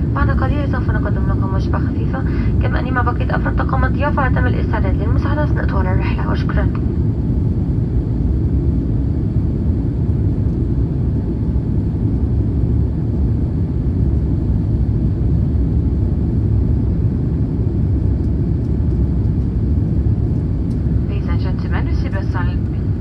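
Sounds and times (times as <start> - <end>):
airplane cabin engine and airflow noise: 0.0 - 23.0.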